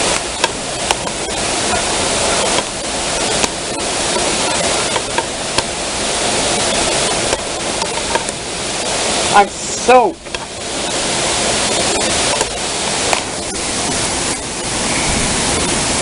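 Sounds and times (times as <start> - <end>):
heavy rain pouring: 0.0 - 16.0
sharp clicks: 2.4 - 5.8, 12.0 - 13.4.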